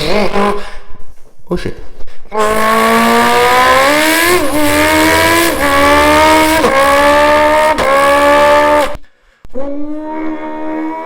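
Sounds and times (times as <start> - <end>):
man imitating motorcycle engine: 2.3 - 8.9.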